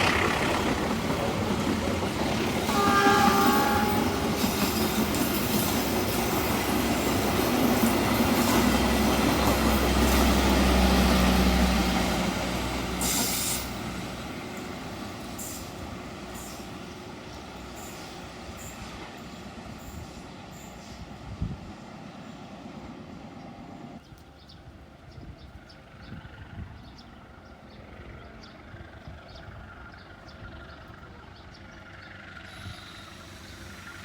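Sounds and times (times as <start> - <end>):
wheels clacking over rail joints: 0.0 - 19.2
passenger train passing: 0.0 - 34.0.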